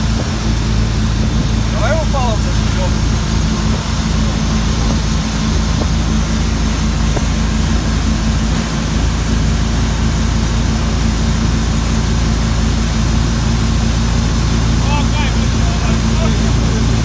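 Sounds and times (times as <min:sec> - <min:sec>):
motorboat engine humming: 0:00.0 - 0:17.0
water rushing noise: 0:00.0 - 0:17.0.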